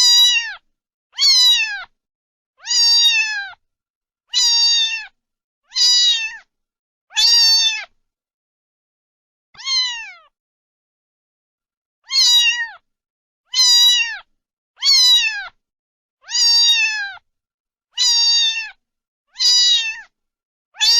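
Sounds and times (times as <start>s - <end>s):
cat meowing: 0.0s - 0.6s, 1.2s - 1.9s, 2.6s - 3.6s, 4.3s - 6.5s, 7.1s - 8.0s, 9.6s - 10.3s, 12.0s - 12.8s, 13.5s - 15.6s, 16.2s - 17.2s, 18.0s - 18.8s, 19.4s - 20.1s.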